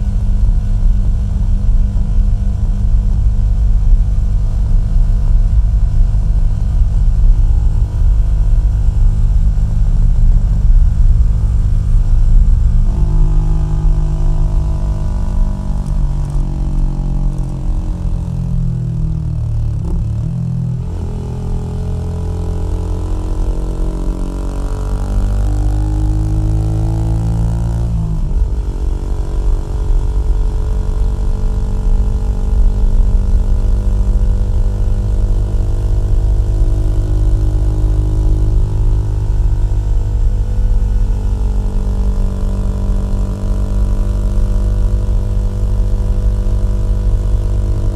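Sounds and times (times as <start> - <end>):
motorcycle engine rumbling: 0.0 - 25.3.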